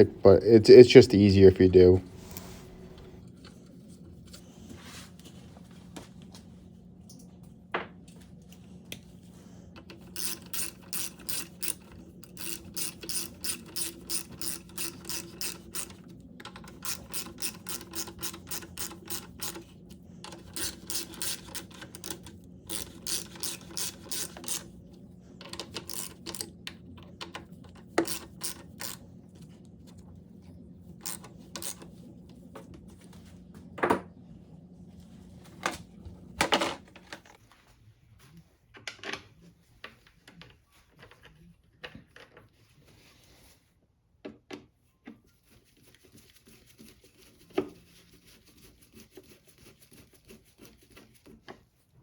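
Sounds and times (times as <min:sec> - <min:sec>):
faint steady hum: 0:00.0 - 0:38.6
ratchet wrench clicking: 0:10.2 - 0:16.0, 0:20.5 - 0:24.6, 0:25.8 - 0:26.4.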